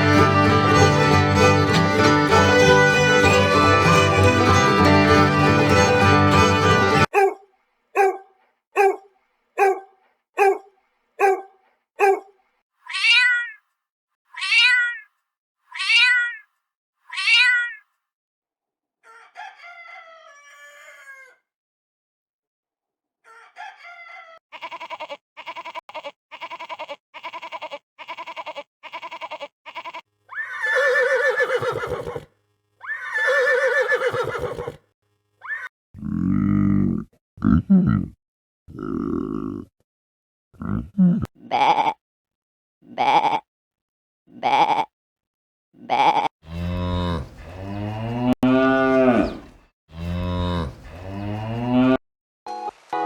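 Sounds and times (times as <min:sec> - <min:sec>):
long wavering bleats: 0:00.0 - 0:07.1, 0:42.9 - 0:43.4, 0:45.8 - 0:52.0
sheep bleat: 0:24.5 - 0:31.0, 0:41.4 - 0:42.0, 0:42.9 - 0:43.4, 0:44.3 - 0:44.9, 0:45.8 - 0:52.0
cow mooing: 0:46.5 - 0:52.0.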